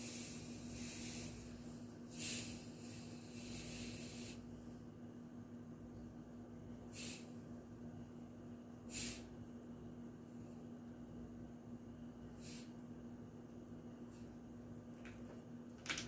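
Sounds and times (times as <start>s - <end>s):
hiss: 0.0s - 4.4s, 6.9s - 7.4s, 8.9s - 9.3s, 12.4s - 12.8s
person sniffing: 0.0s - 4.4s, 6.9s - 7.4s, 8.9s - 9.3s, 12.4s - 12.8s
faint steady hum: 0.0s - 16.0s.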